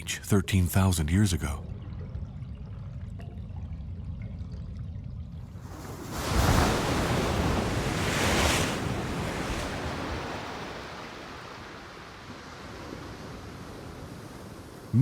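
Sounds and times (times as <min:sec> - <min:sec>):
ocean waves breaking: 0:05.6 - 0:15.0.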